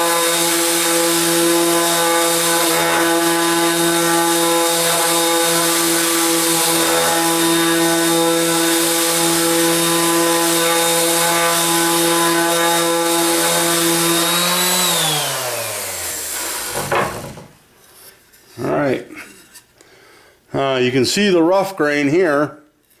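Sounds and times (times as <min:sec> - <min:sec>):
orbital sander running: 0:00.0 - 0:17.4.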